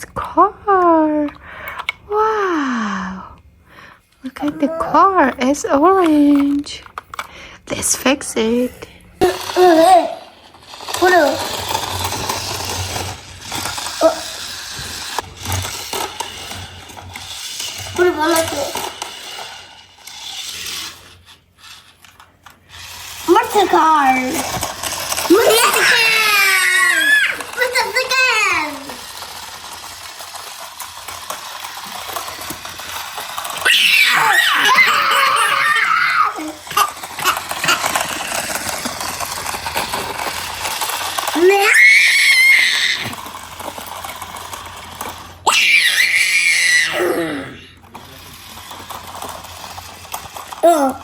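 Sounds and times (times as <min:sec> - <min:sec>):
plastic toy pieces clicking: 0:09.2 - 0:47.0, 0:47.8 - 0:51.0
young child squealing: 0:33.6 - 0:36.5, 0:41.4 - 0:43.1, 0:45.5 - 0:47.5.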